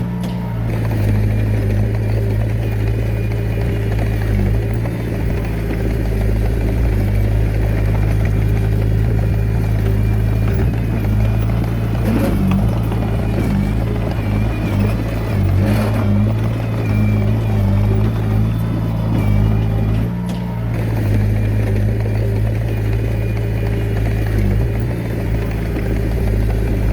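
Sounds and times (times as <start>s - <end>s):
diesel engine running: 0.0s - 26.9s.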